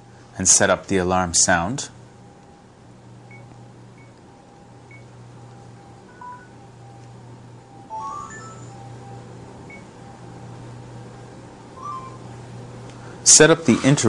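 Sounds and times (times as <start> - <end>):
steady low hum: 0.0 - 14.0
short electronic tones: 11.8 - 12.3.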